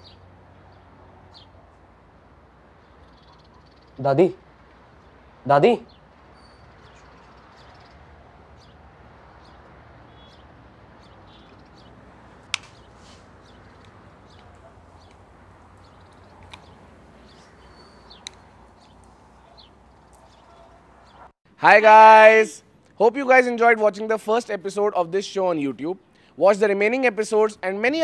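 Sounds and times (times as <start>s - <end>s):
faint bird chirps: 2.8s - 4.0s, 5.8s - 8.8s, 9.4s - 11.9s, 15.8s - 21.3s
sharp click: 12.5s - 12.9s.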